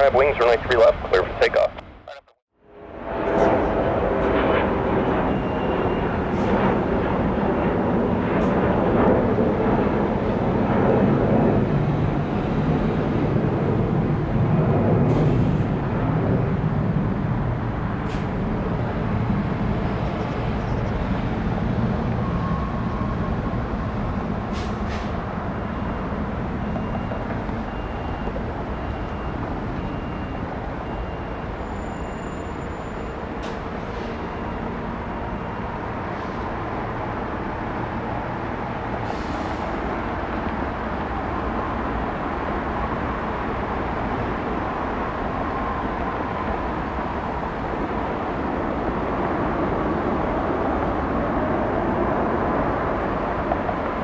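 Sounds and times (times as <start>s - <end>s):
jet engine roar: 0.0s - 54.0s.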